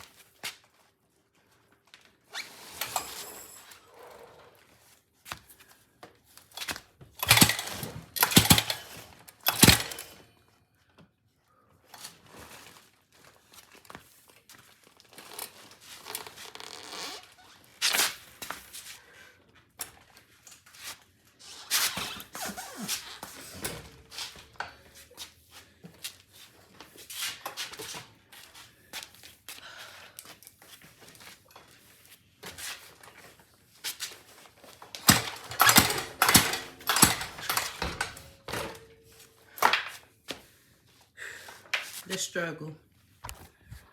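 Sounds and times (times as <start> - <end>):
recoil starter rasping and clunking: 7.2 - 10.2, 34.9 - 38.9.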